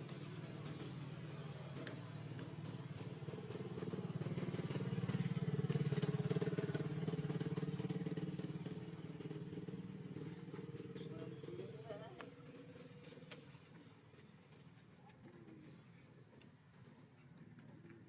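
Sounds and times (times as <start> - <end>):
vehicle engine passing by: 0.0 - 13.3.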